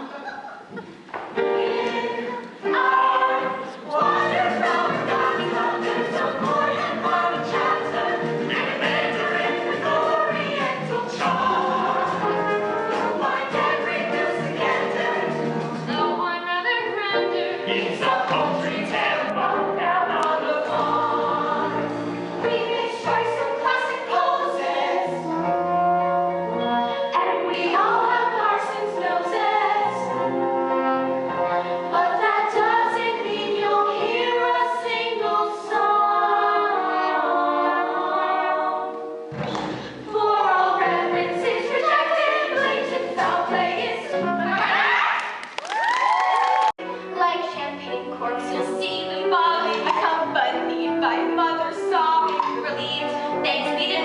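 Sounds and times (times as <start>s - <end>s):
group of voices singing: 0.7s - 16.2s, 16.9s - 25.9s, 26.6s - 30.5s, 31.3s - 45.4s
instrumental accompaniment: 0.7s - 44.9s, 46.6s - 54.0s.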